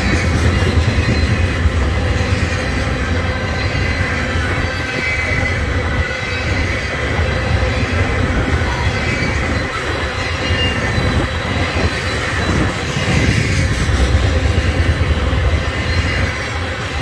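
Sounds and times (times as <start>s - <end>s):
high squeal from wheels: 0.0s - 17.0s
train wheels rumbling on rail: 0.0s - 17.0s.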